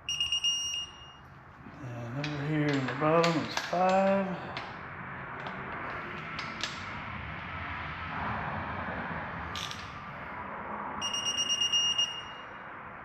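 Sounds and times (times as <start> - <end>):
high pulsing beep: 0.0 - 1.2, 11.0 - 12.6.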